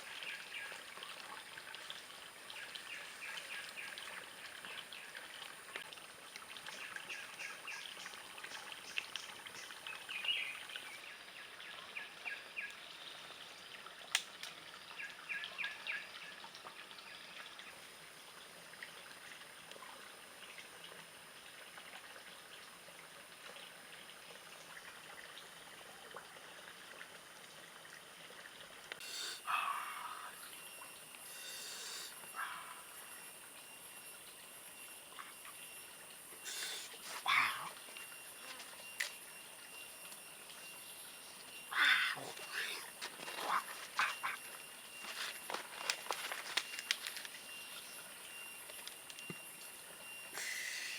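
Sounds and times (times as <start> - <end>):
running water trickling: 0.0 - 50.9
rustle: 34.7 - 50.9.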